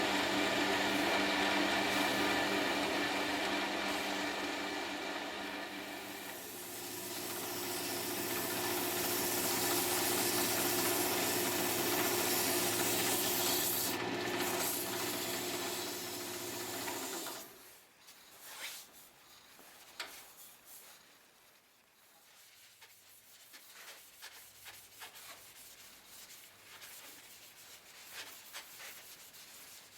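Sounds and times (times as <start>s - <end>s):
sanding spinning wood: 0.0s - 17.6s
wood lathe motor hum: 0.0s - 17.6s
light scrapes and taps: 18.1s - 20.6s.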